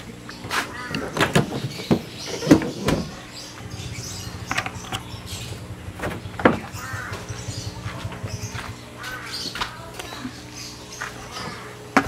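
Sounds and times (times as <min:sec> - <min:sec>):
bird calling: 0:00.3 - 0:11.8
low steady hum: 0:03.4 - 0:11.0.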